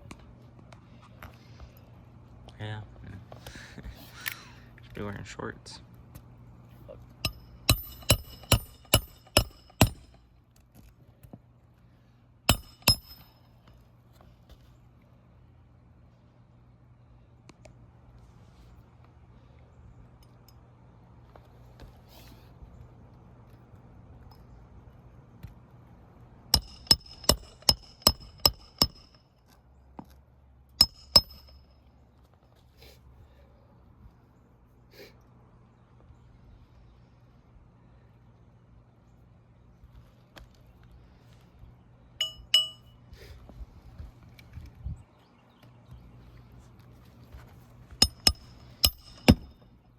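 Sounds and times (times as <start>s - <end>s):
hammer striking nails: 7.2s - 10.2s, 12.5s - 13.4s, 26.6s - 29.2s, 30.8s - 31.7s, 48.0s - 49.6s.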